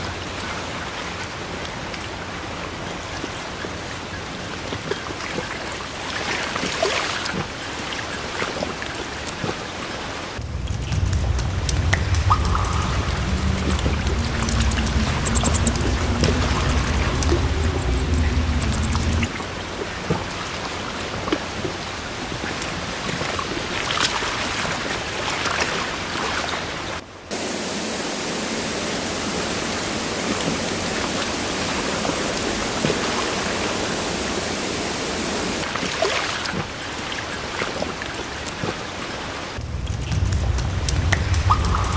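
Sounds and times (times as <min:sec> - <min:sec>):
rushing water hiss: 0:05.2 - 0:41.9
low hum: 0:10.4 - 0:20.1, 0:39.6 - 0:41.9.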